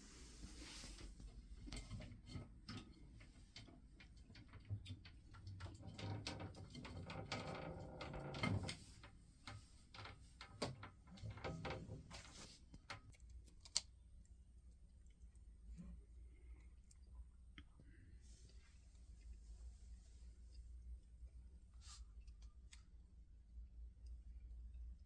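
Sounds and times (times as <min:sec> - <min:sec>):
scratching or rustling noise: 0:00.0 - 0:03.6, 0:08.5 - 0:13.8
faint clicks and taps: 0:01.6 - 0:19.4.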